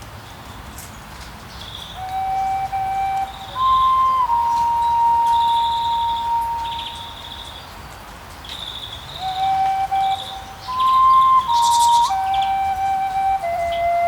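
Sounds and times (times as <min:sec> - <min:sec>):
birds chirping in high trills: 0:01.5 - 0:14.0
flute long notes: 0:02.0 - 0:07.3, 0:09.1 - 0:14.0.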